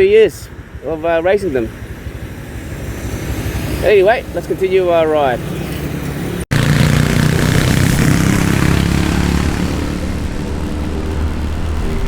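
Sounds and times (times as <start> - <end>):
motorbike engine running: 6.5 - 12.0
wind noise on microphone: 7.2 - 12.0.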